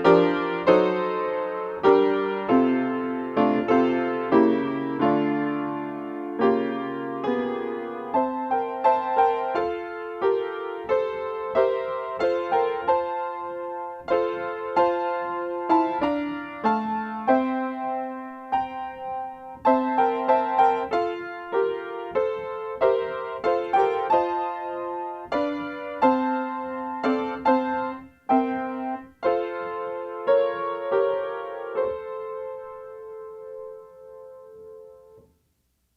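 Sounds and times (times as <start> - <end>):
slow gentle piano piece: 0.0 - 35.9.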